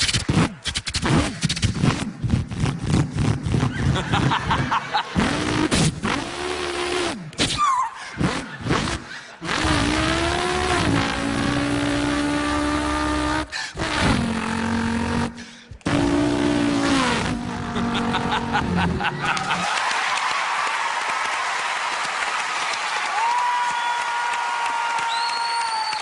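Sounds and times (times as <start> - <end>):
man imitating engine revving: 1.9 - 3.9, 5.0 - 19.6.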